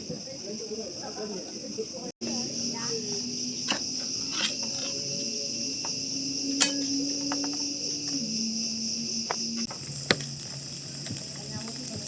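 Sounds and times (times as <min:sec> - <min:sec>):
insects chorus: 0:00.0 - 0:12.0
low hum: 0:02.3 - 0:11.0.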